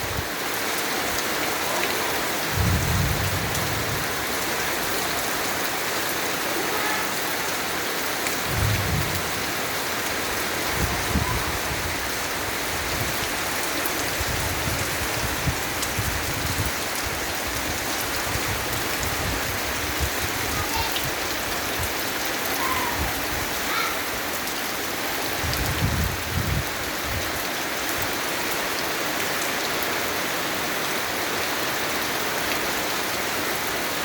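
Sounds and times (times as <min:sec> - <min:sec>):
heavy rain falling: 0:00.0 - 0:34.0
low rumbles: 0:02.5 - 0:04.4, 0:08.4 - 0:09.8.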